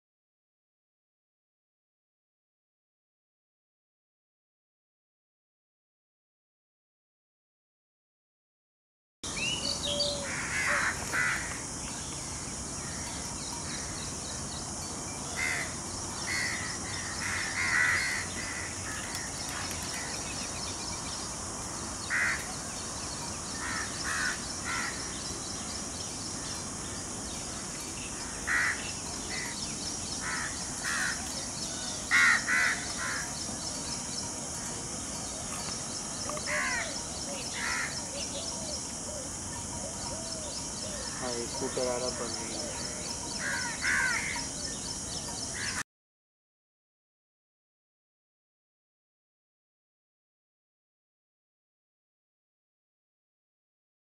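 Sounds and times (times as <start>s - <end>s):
steady high hiss: 9.3s - 45.8s
harsh caw-like bird calls: 9.9s - 11.7s, 15.3s - 20.3s, 22.0s - 22.6s, 23.5s - 25.2s, 27.5s - 29.6s, 30.2s - 33.4s, 36.4s - 38.5s, 42.7s - 44.5s, 45.5s - 45.8s.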